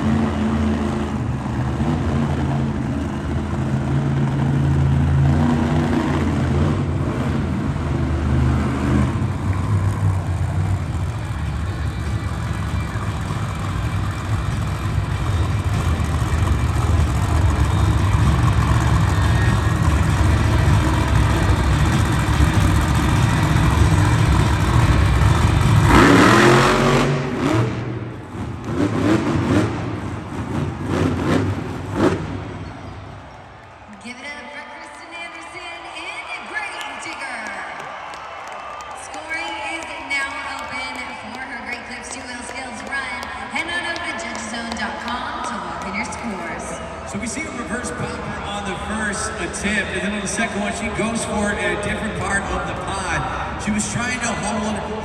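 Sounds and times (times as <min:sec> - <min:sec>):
monster truck engine revving: 0:00.0 - 0:33.8.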